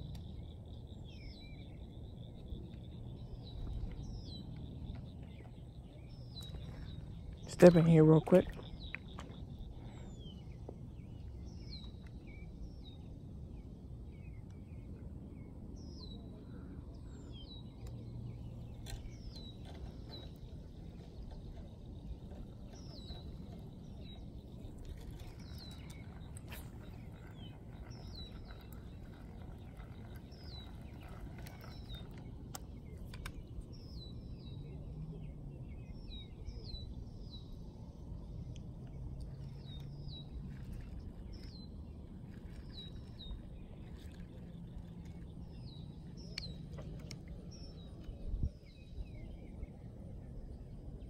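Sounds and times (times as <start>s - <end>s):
low outdoor rumble: 0.0s - 51.0s
small birds chirping: 0.0s - 51.0s
faint clicks: 17.8s - 33.8s, 38.5s - 48.3s.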